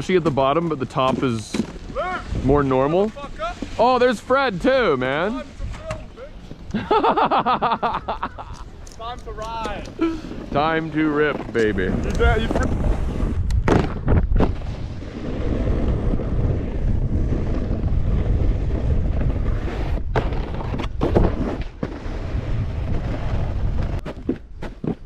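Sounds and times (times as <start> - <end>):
snowboard scraping snow: 0.0 - 8.6, 9.6 - 25.0
wind on microphone: 2.0 - 2.9, 9.8 - 24.4.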